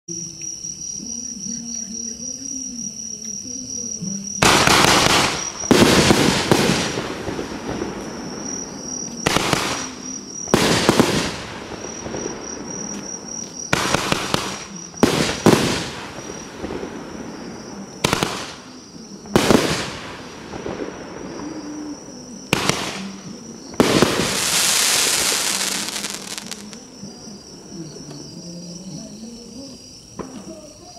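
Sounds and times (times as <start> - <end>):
firework bangs and crackle: 4.4 - 26.8.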